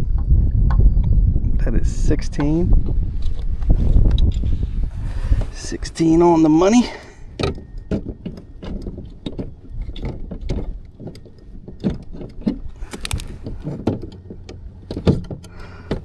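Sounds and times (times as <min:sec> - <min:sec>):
low rumble: 0:00.0 - 0:07.8
fishing gear clicking and knocking: 0:05.4 - 0:16.0.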